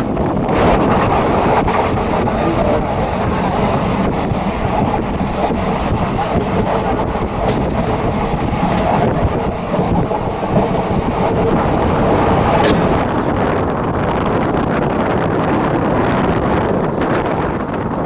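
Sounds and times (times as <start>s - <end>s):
train wheels rumbling on rails: 0.0s - 18.0s
clicks over rail joints: 0.5s - 13.1s.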